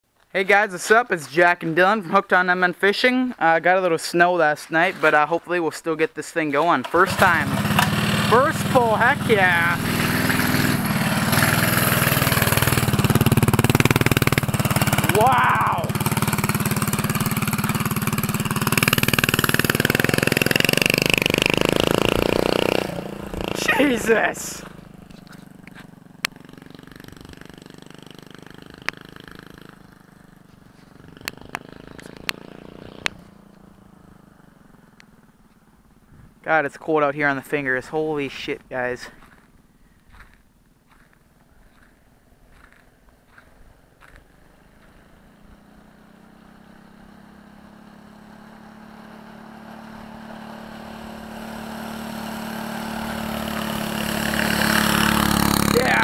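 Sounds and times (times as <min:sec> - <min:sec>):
minibike engine running: 0:07.0 - 0:35.7, 0:42.5 - 0:44.2, 0:44.8 - 0:56.0.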